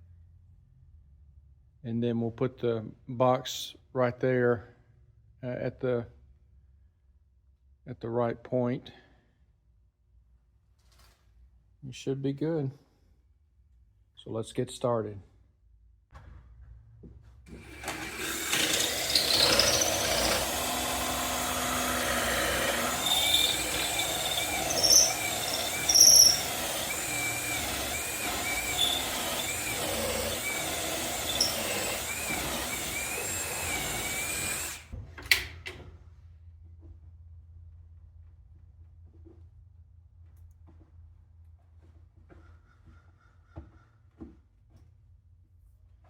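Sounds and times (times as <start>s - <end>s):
power drill boring wood: 17.5s - 34.9s.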